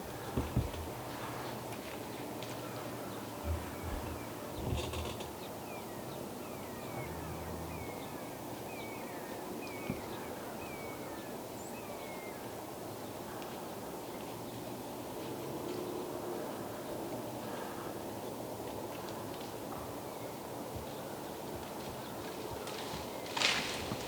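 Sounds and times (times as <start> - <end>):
soft low thump: 3.4 - 4.8.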